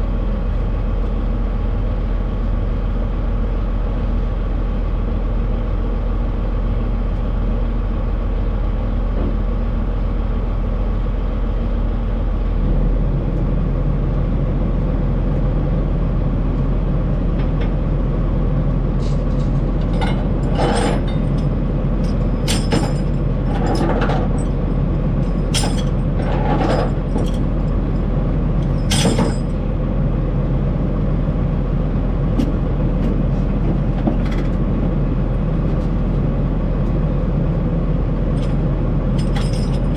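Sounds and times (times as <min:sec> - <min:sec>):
road noise: 0:00.0 - 0:39.9
truck engine hum: 0:00.0 - 0:39.9
sharp knocks and rattles: 0:19.4 - 0:27.5, 0:28.8 - 0:29.6.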